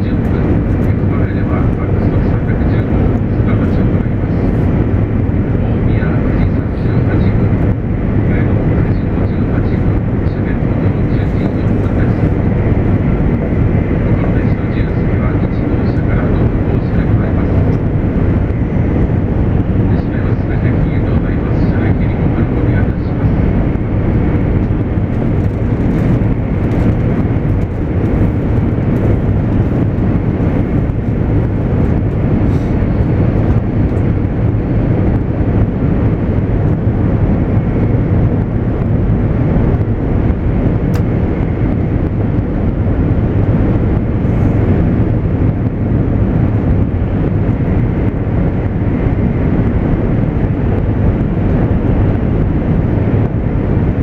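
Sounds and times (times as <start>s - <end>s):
air noise: 0.0s - 54.0s
wheels rumbling on rail: 23.4s - 49.5s.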